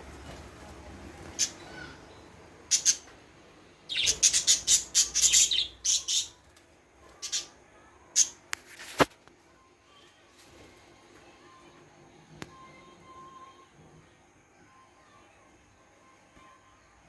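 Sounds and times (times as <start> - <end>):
parrots chirping: 1.4 - 3.1, 3.9 - 6.4.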